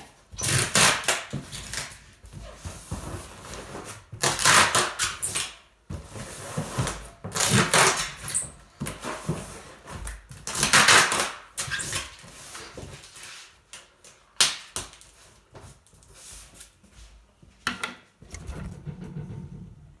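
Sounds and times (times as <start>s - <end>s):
hard objects knocking: 17.7s - 20.0s.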